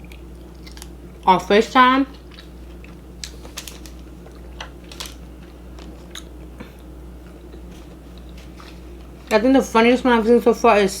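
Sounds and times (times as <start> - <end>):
person chewing and smacking: 0.0 - 1.2, 2.1 - 8.8
low steady hum: 0.0 - 11.0.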